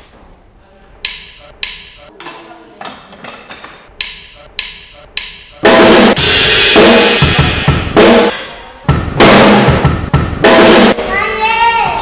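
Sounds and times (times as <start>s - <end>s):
drum kit hits: 4.0s - 11.2s
cymbal crash ringing: 5.6s - 11.0s.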